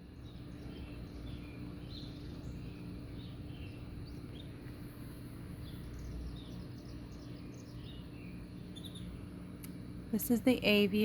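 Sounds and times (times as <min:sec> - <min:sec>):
faint hum: 0:00.0 - 0:11.0
canaries chirping: 0:05.6 - 0:09.1.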